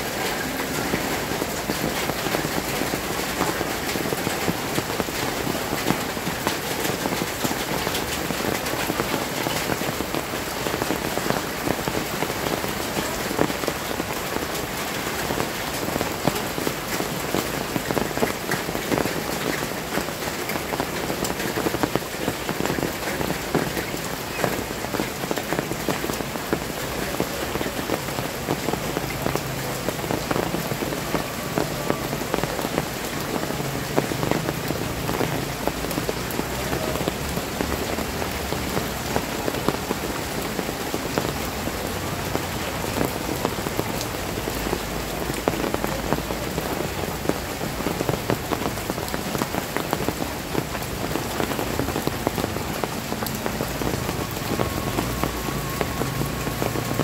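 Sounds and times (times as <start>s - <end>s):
heavy rain on flooded street: 0.0s - 57.0s.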